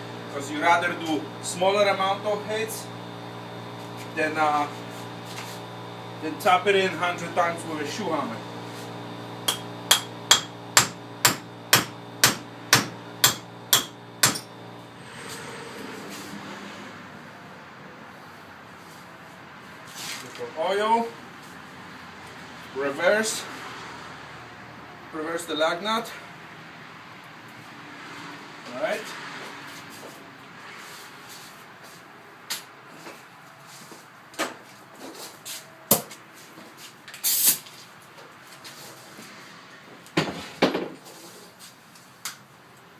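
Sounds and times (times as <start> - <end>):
hammer striking metal: 9.5 - 14.5.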